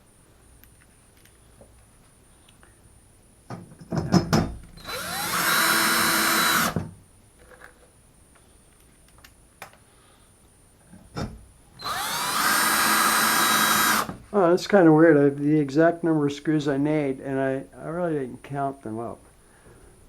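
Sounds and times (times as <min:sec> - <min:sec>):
handling knocks and clicks: 0:03.5 - 0:04.7
power drill whining: 0:04.8 - 0:06.9, 0:11.8 - 0:14.2.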